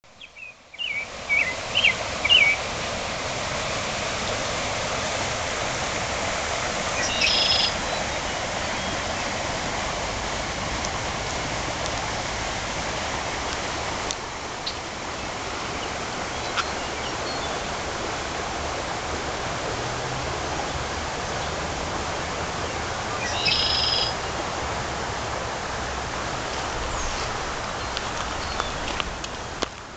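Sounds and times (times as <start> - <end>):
birds chirping: 0.1 - 2.6, 7.0 - 9.3, 14.6 - 17.7, 22.3 - 24.4, 26.5 - 29.0
floodwater flowing: 0.3 - 29.9.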